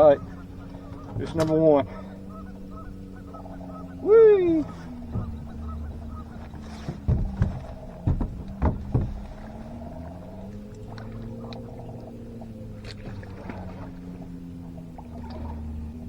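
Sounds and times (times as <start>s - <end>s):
boat motor humming: 0.0s - 16.0s
sharp knocks: 4.9s - 9.6s.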